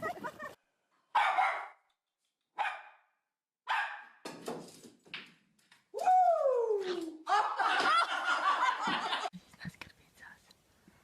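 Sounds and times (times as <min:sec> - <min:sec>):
dog barking: 0:01.1 - 0:01.8, 0:02.6 - 0:03.1, 0:03.7 - 0:04.2.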